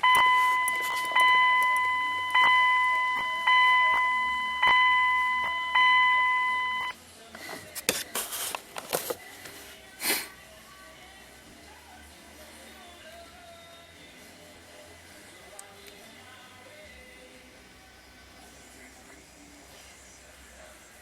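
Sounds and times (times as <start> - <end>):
warning chime tone: 0.0 - 7.0.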